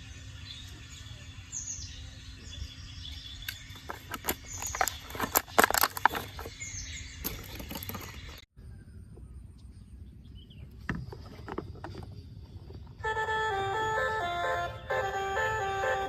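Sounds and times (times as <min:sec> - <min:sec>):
sharp clicks and knocks: 0:03.4 - 0:06.6.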